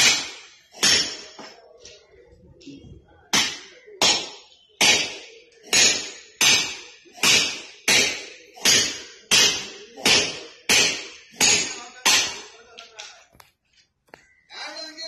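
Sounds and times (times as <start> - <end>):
hammer striking steel: 0.0 - 1.6, 3.3 - 12.6.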